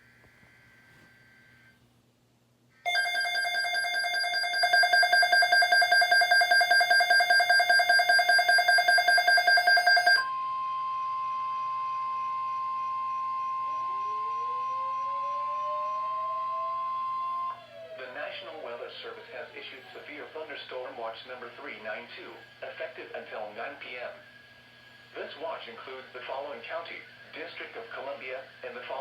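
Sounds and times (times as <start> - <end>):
pulsing electronic alert tones: 2.9 - 10.3
steady warning tone: 2.9 - 18.6.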